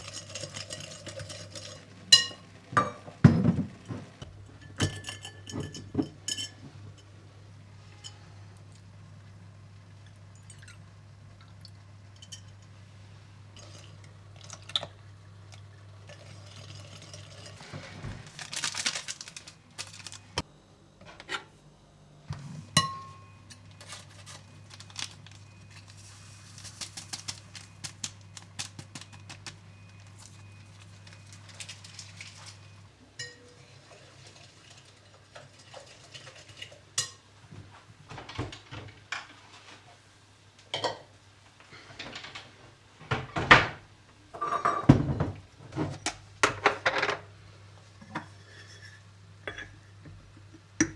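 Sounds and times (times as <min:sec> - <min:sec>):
dishes and utensils clinking: 0:00.0 - 0:07.1, 0:44.4 - 0:45.3, 0:48.0 - 0:49.8
steady low hum: 0:00.0 - 0:33.6.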